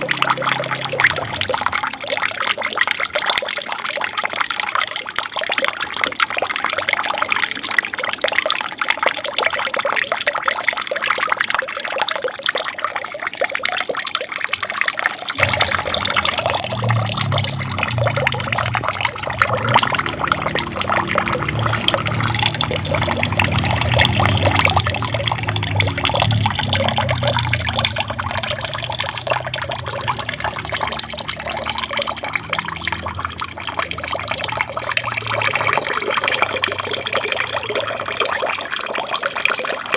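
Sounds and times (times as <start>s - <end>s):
water trickling and splashing: 0.0s - 39.9s
low rumble: 15.4s - 36.0s.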